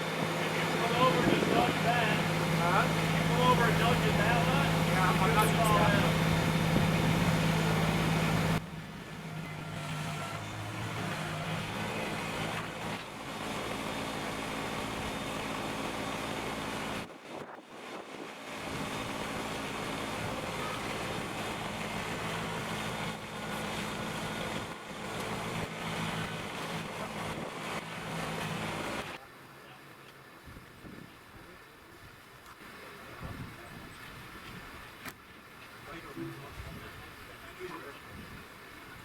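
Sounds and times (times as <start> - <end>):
tractor diesel engine running: 0.0 - 17.2, 18.3 - 29.2.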